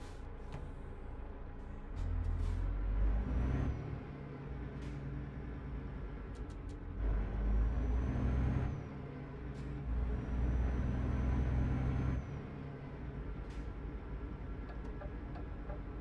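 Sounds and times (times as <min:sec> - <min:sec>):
truck engine running: 0:08.3 - 0:16.0.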